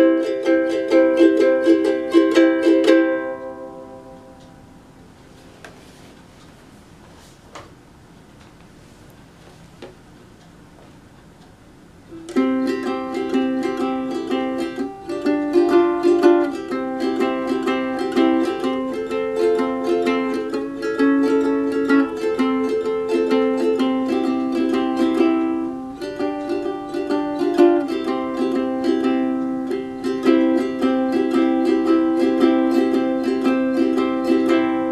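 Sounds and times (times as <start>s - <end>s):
ukulele strumming chords: 0.0s - 5.1s, 12.1s - 34.9s.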